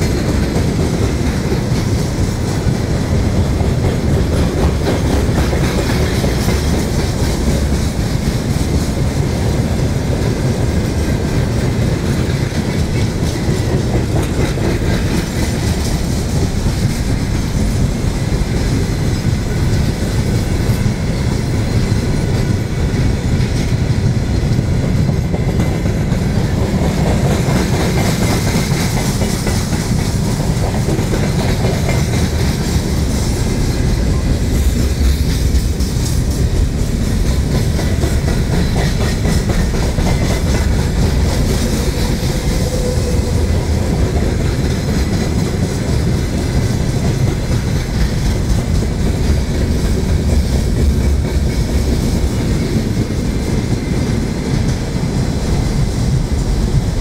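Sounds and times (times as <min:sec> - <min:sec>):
freight train rumbling past: 0:00.0 - 0:57.0
wheels clattering over rails: 0:00.0 - 0:57.0.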